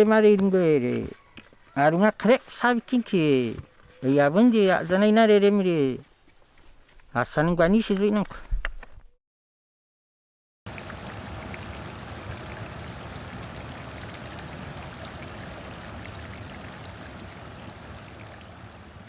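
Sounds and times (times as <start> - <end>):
stream of flowing water: 10.7 - 19.0.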